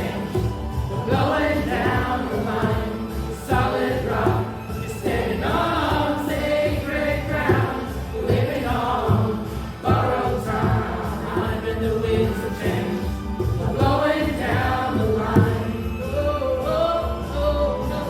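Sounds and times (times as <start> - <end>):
choir singing: 0.0 - 18.0.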